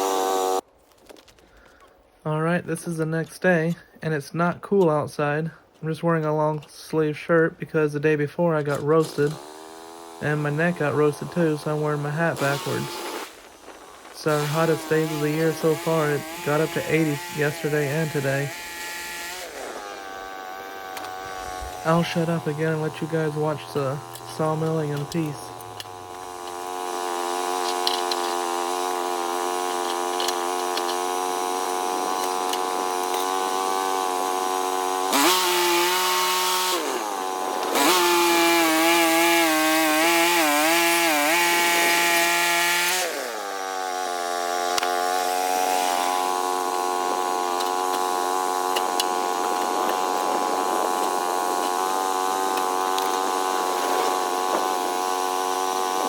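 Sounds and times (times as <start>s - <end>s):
band saw cutting log: 0.0s - 0.6s, 6.1s - 56.0s
gas engine running: 8.7s - 56.0s.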